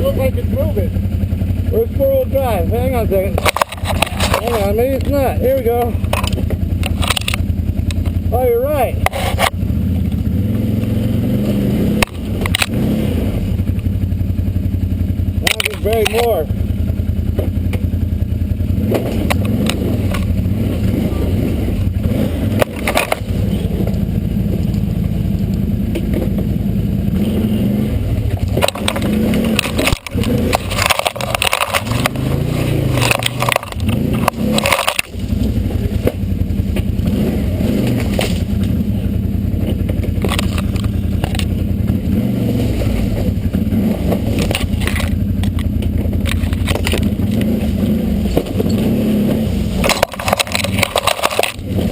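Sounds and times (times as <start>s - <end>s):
off-road vehicle engine revving: 0.0s - 51.9s
rock knocking against tyres: 28.2s - 35.3s.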